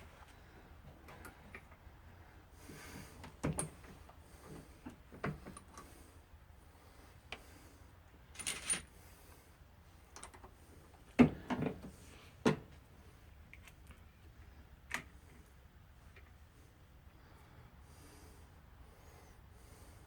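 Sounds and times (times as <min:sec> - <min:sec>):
brass cases clinking: 0:08.4 - 0:08.9.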